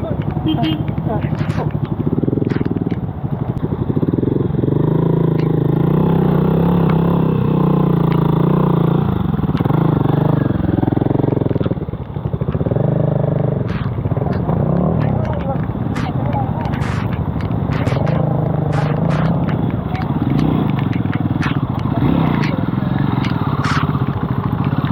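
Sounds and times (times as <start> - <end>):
sharp clattering clicks: 0.0 - 3.6, 11.2 - 24.9
motorcycle engine running: 0.0 - 24.9.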